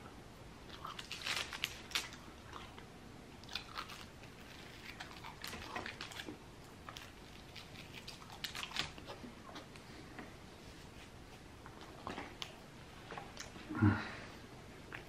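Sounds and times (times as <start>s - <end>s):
person chewing: 0.7s - 9.9s
biting into bread roll: 3.4s - 9.7s.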